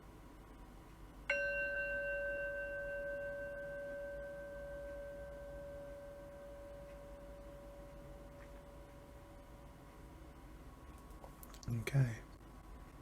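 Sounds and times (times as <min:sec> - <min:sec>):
singing bowl ringing: 0:01.3 - 0:09.7.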